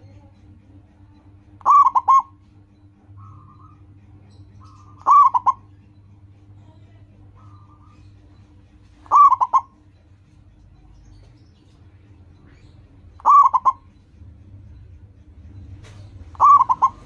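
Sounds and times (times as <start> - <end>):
dove cooing: 1.5 - 6.6, 7.2 - 10.0, 12.6 - 14.1, 15.8 - 17.0.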